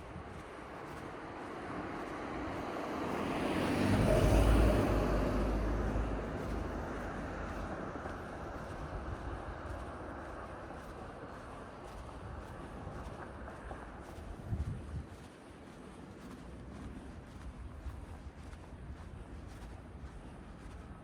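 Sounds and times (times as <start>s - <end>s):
car passing by: 0.8s - 11.7s.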